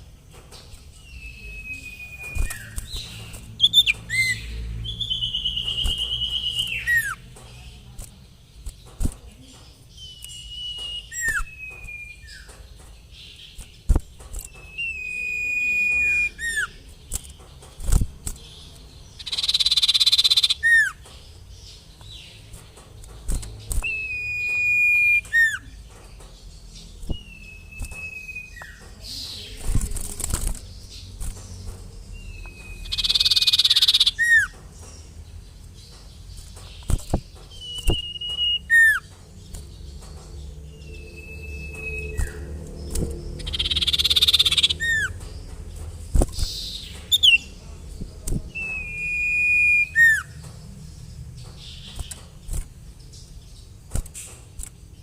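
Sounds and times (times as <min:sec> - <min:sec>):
bird whistling call: 0:01.1 - 0:02.8, 0:10.2 - 0:12.5, 0:23.8 - 0:25.6, 0:37.6 - 0:39.1, 0:43.4 - 0:45.2, 0:48.6 - 0:50.3.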